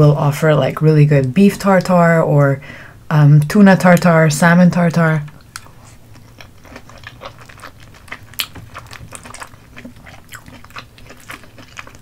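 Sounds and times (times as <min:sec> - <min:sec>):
sticky chewing mouth clicks: 0:05.3 - 0:12.0.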